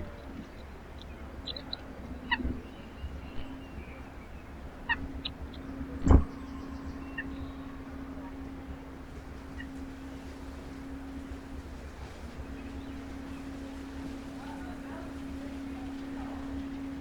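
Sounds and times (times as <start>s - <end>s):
small birds chirping: 0.0s - 17.0s
steady low hum: 0.0s - 17.0s
dull thumps: 6.0s - 6.4s.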